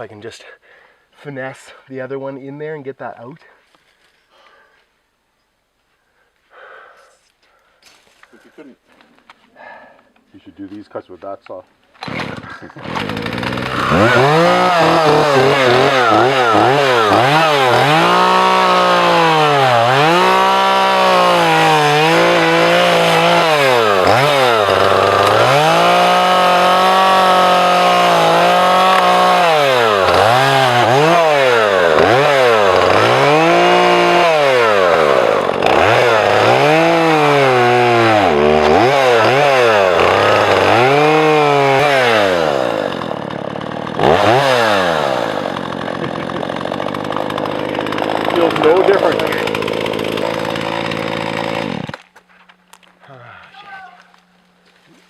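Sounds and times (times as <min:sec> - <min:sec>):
chainsaw cutting log: 0:12.0 - 0:52.2.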